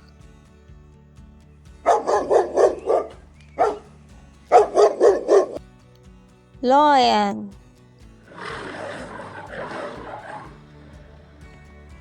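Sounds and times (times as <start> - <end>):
dog barking: 1.9 - 3.9, 4.5 - 5.6.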